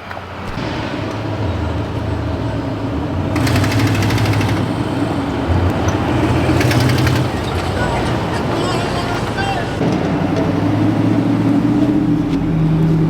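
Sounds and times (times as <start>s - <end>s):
engine low rumble: 0.3s - 13.0s
rapid mechanical rattle: 0.4s - 10.0s.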